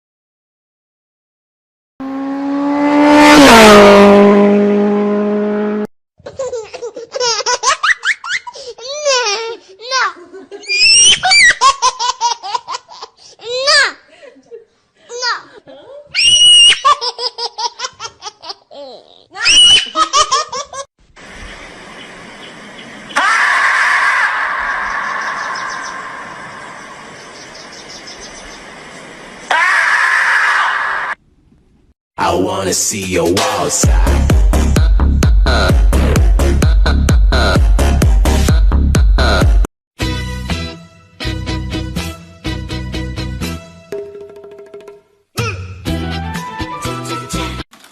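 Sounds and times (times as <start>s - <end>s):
fast vehicle passing by: 2.0s - 5.9s, 24.6s - 29.4s
child giggling: 6.2s - 16.1s, 16.7s - 20.9s.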